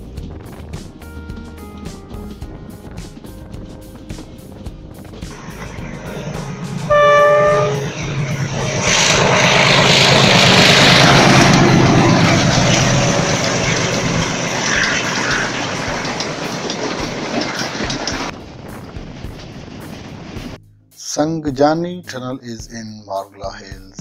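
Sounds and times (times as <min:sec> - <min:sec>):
diesel engine drone: 0:00.0 - 0:20.6
train wheels clattering on rails: 0:00.2 - 0:20.6
train horn blast: 0:06.1 - 0:08.5.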